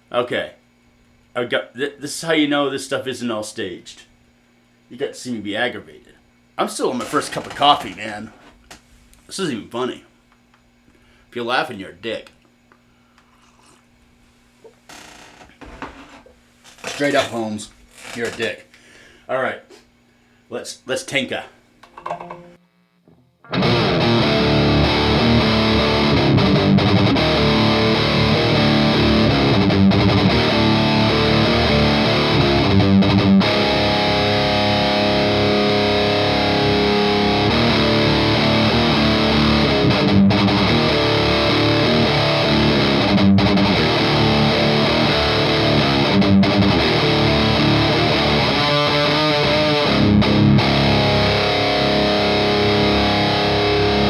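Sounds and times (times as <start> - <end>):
distorted electric guitar riffing: 23.1 - 54.0.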